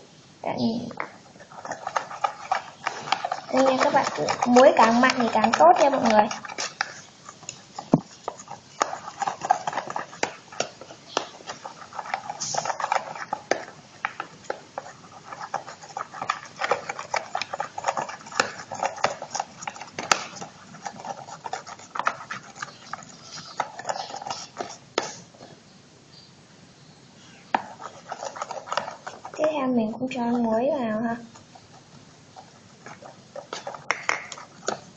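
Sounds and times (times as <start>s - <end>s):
spoon stirring in container: 1.0s - 25.3s, 27.6s - 34.9s.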